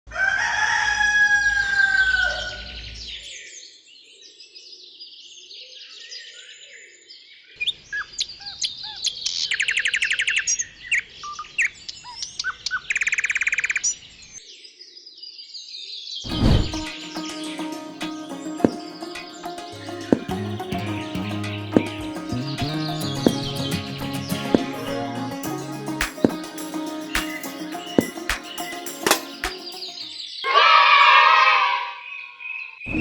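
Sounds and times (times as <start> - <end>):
birds chirping and singing: 16.2 - 30.6.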